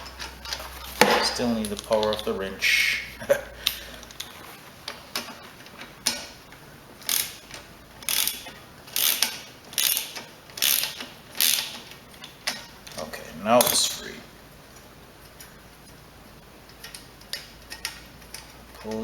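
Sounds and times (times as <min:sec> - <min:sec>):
ratchet wrench clicking: 0:07.0 - 0:13.0.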